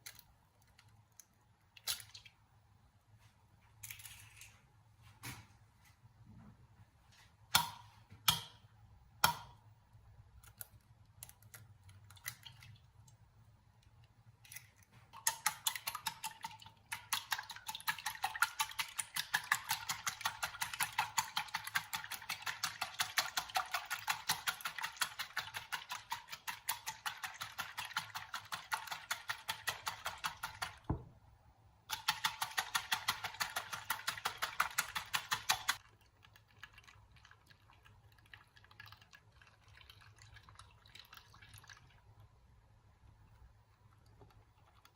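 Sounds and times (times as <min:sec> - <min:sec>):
rapid keyboard typing: 0:17.0 - 0:30.8, 0:31.9 - 0:37.3.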